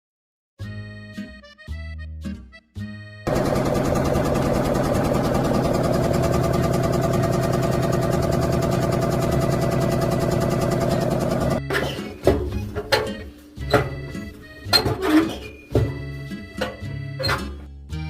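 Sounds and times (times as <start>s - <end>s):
machine motor rattling: 3.3s - 11.6s.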